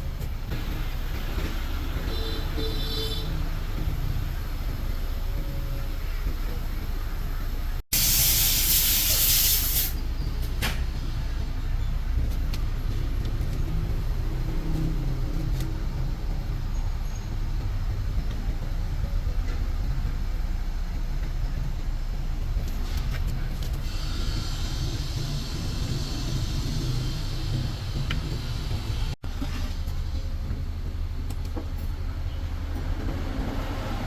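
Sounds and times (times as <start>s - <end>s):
low mechanical rumble: 0.0s - 34.0s
hiss: 7.9s - 10.0s, 23.8s - 29.1s.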